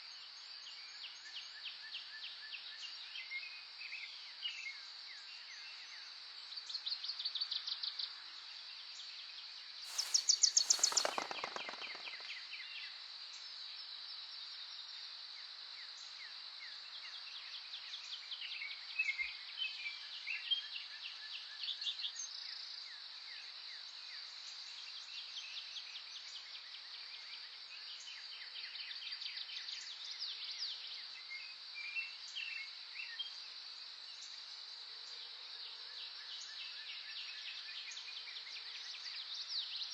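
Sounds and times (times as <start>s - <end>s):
high insect buzz: 9.9s - 12.3s
rapid pulsing bird call: 9.9s - 12.3s
songbirds chirping: 9.9s - 12.4s.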